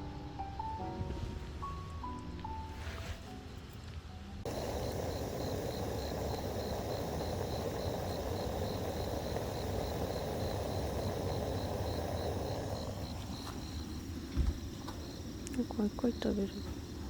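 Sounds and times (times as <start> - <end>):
steady rushing noise: 4.5 - 15.6
cricket chirping: 4.5 - 17.0.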